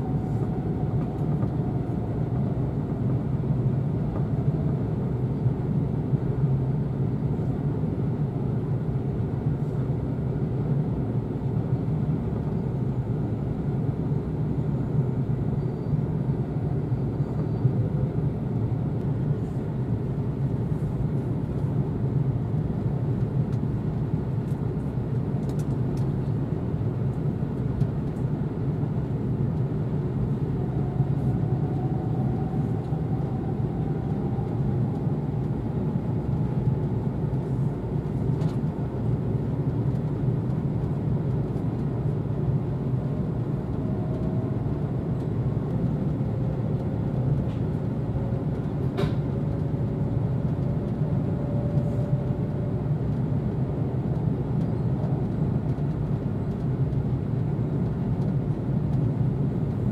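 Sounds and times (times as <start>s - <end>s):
train running rumble: 29.1s - 59.9s.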